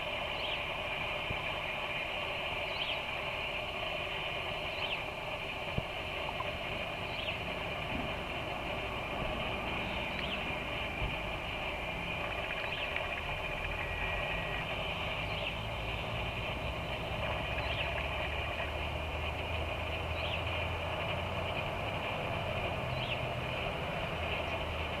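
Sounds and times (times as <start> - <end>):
low rumble: 5.8 - 21.0.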